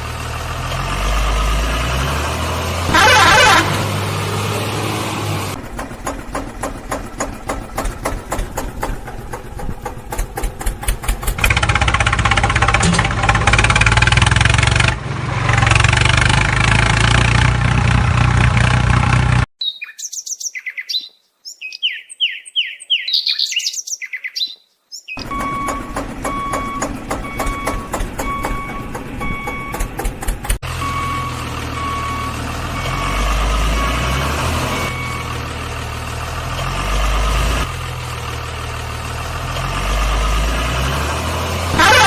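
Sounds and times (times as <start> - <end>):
vehicle engine clattering: 0.0 - 19.5, 25.2 - 42.0
birds chirping: 19.6 - 29.8
reversing beeper: 25.2 - 29.9, 30.7 - 35.4.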